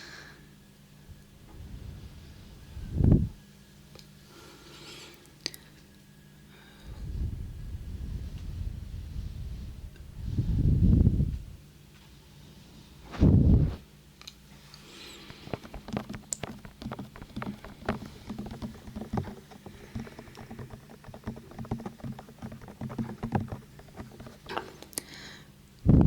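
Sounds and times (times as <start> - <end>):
fingertip tapping: 15.2 - 25.1.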